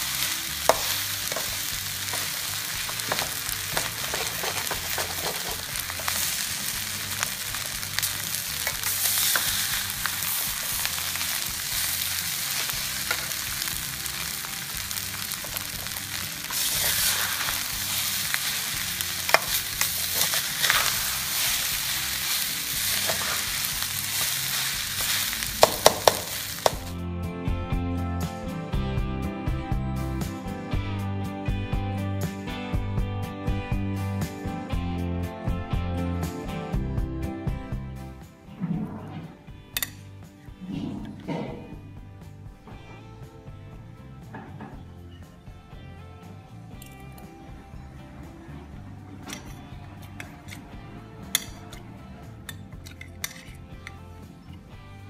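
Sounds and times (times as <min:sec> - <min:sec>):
rice sizzling in a wok: 0:00.0 - 0:27.0, 0:51.3 - 0:51.6
music: 0:00.0 - 0:55.0
metal spatula scraping: 0:00.7 - 0:06.5, 0:14.9 - 0:26.8, 0:49.2 - 0:54.0.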